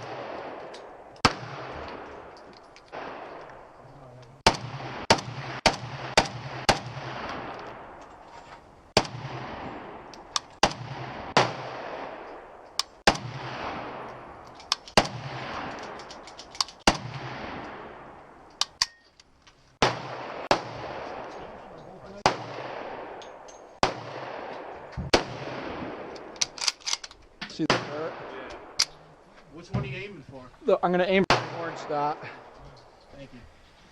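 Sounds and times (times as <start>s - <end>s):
gunshots with echo: 0.0s - 2.3s, 4.4s - 8.0s, 8.9s - 16.0s, 19.8s - 26.4s, 27.6s - 28.8s, 31.2s - 32.5s.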